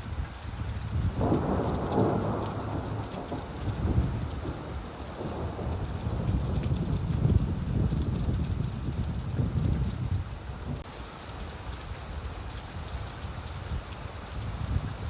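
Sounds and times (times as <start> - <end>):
steady rain: 0.0 - 15.0
rolling thunder rumble: 1.0 - 10.8.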